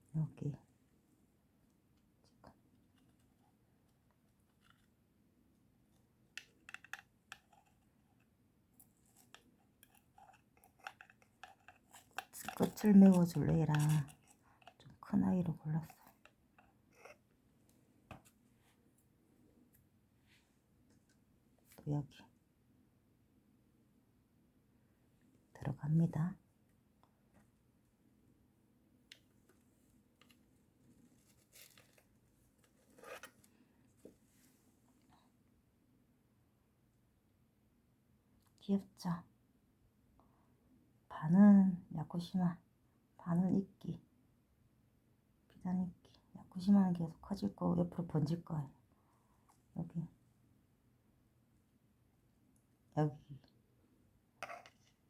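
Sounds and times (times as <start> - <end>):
moss rustling and clicking: 6.4 - 14.9, 29.1 - 34.6.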